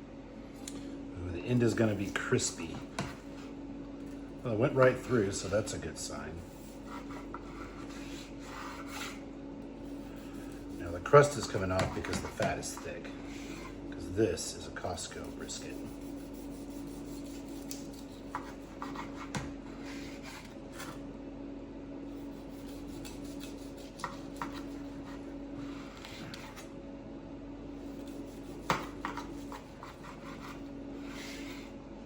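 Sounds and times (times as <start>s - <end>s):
steady low hum: 0.0s - 32.0s
knife sawing through meat crust: 6.4s - 9.2s, 9.8s - 13.8s, 15.0s - 21.0s, 22.1s - 26.6s, 27.8s - 31.7s.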